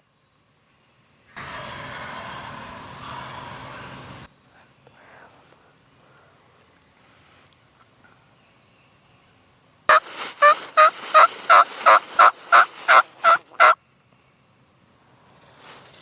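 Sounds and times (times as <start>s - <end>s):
wild turkey calling: 9.9s - 13.8s.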